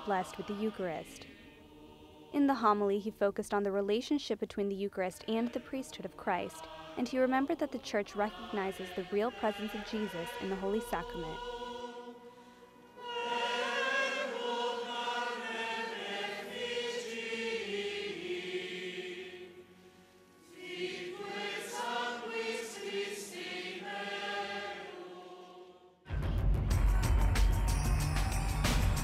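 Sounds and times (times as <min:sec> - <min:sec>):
church choir singing: 0:00.0 - 0:03.0, 0:05.1 - 0:26.1
loud music: 0:26.1 - 0:29.0.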